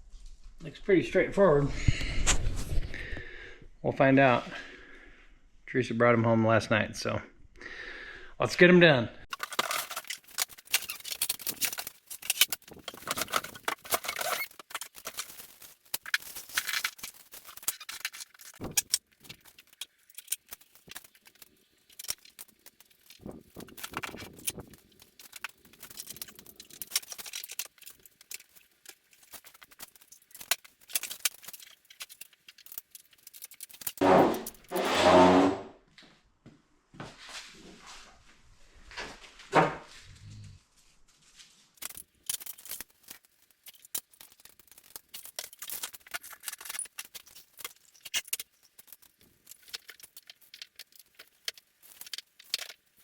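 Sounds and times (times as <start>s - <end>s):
clinks and rattles of screws and tools: 9.3s - 34.9s, 41.8s - 53.0s.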